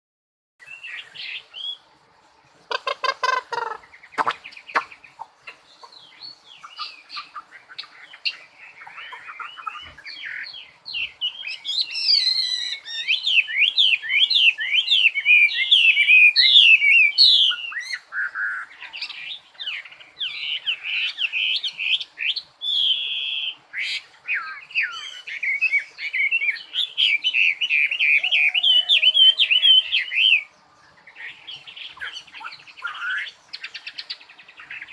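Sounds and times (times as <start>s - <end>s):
songbird singing: 0.6s - 34.9s
harsh buzzy bird call: 2.7s - 5.9s.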